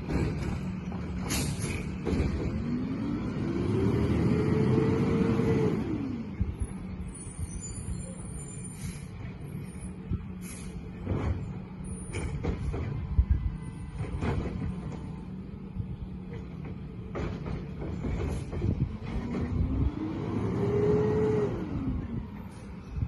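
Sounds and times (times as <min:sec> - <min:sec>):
metal clanks and knocks: 0:00.0 - 0:02.8, 0:11.0 - 0:15.3, 0:16.2 - 0:19.7
truck engine hum: 0:00.0 - 0:23.0.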